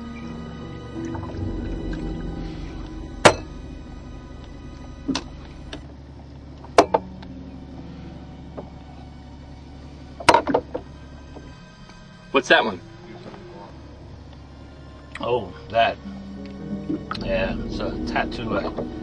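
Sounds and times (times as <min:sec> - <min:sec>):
low hum: 0:00.0 - 0:19.0
sharp knocks: 0:01.0 - 0:05.9.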